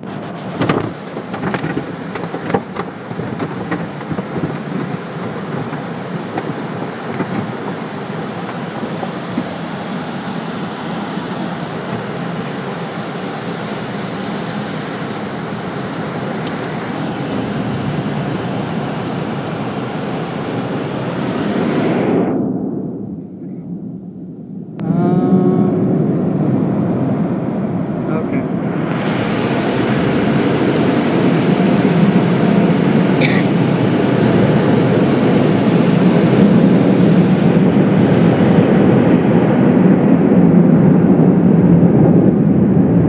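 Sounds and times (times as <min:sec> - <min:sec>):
car wash spray drumming on car: 0:00.4 - 0:21.6.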